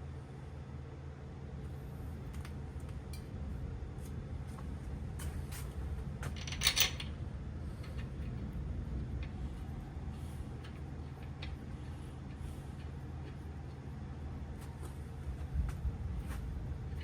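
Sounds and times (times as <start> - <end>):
steady low hum: 0.0 - 17.0
metal clatter: 6.2 - 7.2
metal parts clicking and scraping: 6.2 - 7.2, 10.6 - 13.4.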